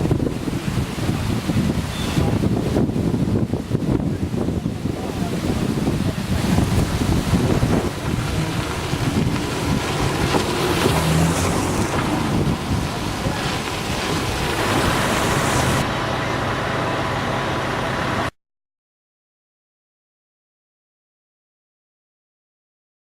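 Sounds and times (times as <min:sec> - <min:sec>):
wind buffeting microphone: 0:00.0 - 0:15.9
low engine hum: 0:00.0 - 0:18.4.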